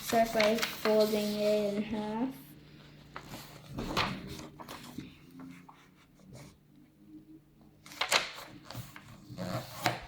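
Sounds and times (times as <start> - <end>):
paper crinkling crease: 0.0 - 2.0, 7.8 - 10.0
paper rustling: 0.0 - 2.1, 2.8 - 6.6, 7.8 - 10.0.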